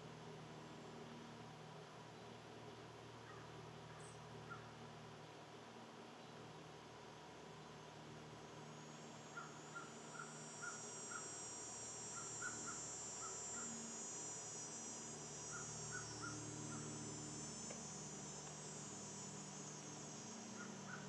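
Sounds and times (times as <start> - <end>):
high-pitched insect buzz: 7.6 - 21.0.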